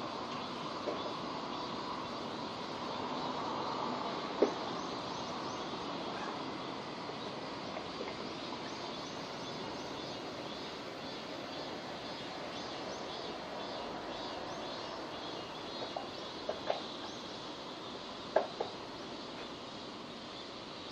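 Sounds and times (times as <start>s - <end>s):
steady rain falling: 0.0s - 20.9s.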